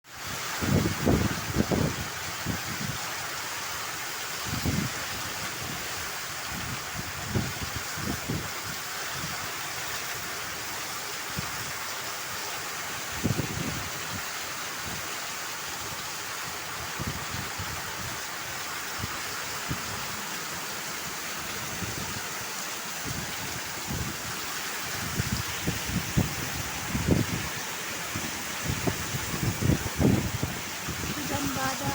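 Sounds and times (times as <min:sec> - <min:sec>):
heavy rain: 0:00.0 - 0:31.9
wind buffeting microphone: 0:00.6 - 0:03.1, 0:04.4 - 0:09.5, 0:13.1 - 0:14.2, 0:16.6 - 0:31.9.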